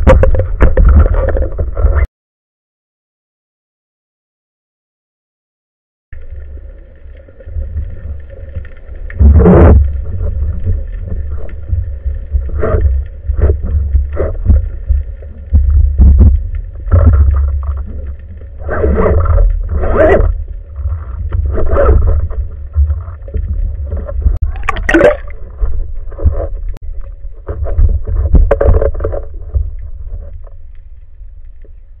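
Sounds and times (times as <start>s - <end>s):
gurgling water splashes: 6.2s - 30.6s
low boat rumble: 6.2s - 32.0s.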